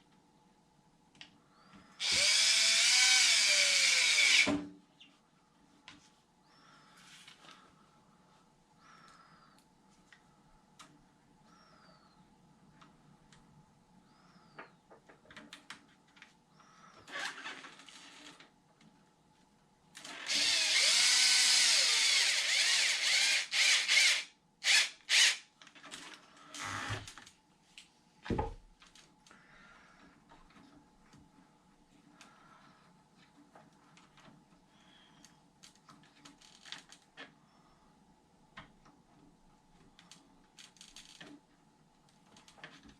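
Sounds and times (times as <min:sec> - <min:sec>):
cordless drill running: 0:02.0 - 0:04.5, 0:20.2 - 0:25.4.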